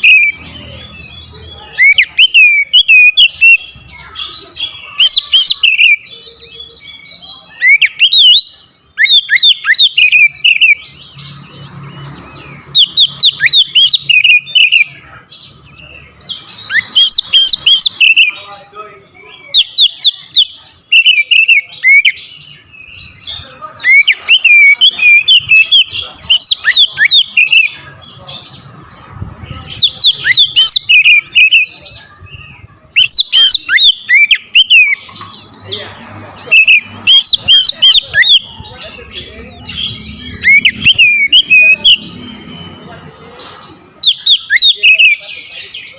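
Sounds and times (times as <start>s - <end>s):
bird singing whistled phrases: 0.0s - 3.8s, 4.7s - 11.0s, 12.7s - 15.0s, 16.4s - 18.4s, 19.4s - 27.8s, 29.7s - 31.8s, 32.4s - 35.1s, 36.4s - 38.7s, 39.6s - 42.8s, 44.0s - 45.9s.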